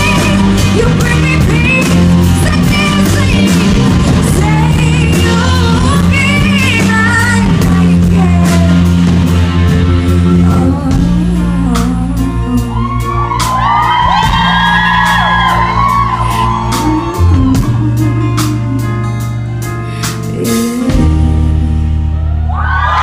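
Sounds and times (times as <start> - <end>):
woman singing: 0.0 - 9.0, 9.6 - 13.6, 16.2 - 19.3, 19.9 - 22.0
live band playing: 0.0 - 23.0.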